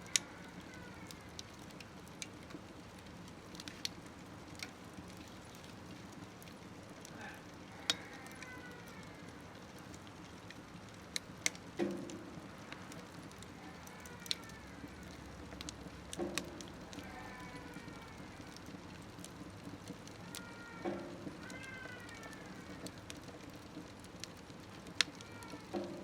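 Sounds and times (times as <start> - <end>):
fire crackles and pops: 0.0 - 26.0
wood fire hissing: 0.0 - 26.0.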